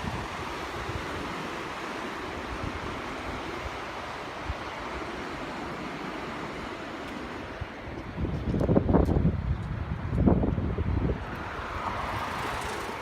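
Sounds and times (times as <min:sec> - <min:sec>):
waterfall rushing: 0:00.0 - 0:07.6
wind rumbling on microphone: 0:00.0 - 0:13.0.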